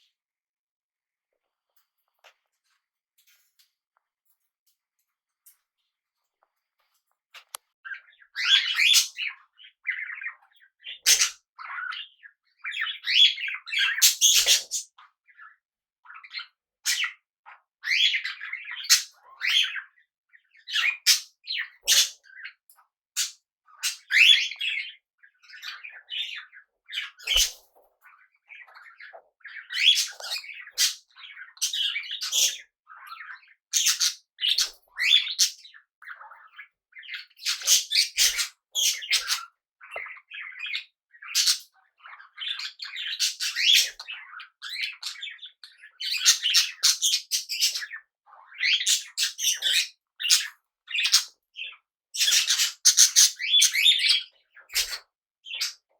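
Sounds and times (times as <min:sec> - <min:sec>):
parrots chirping: 0:07.4 - 0:15.4, 0:20.7 - 0:22.4, 0:23.2 - 0:55.8.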